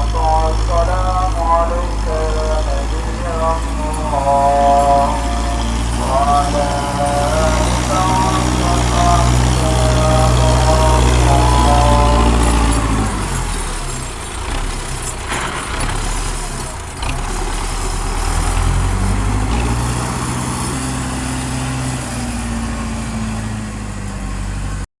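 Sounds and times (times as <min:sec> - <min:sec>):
tractor diesel engine running: 0:00.0 - 0:24.9.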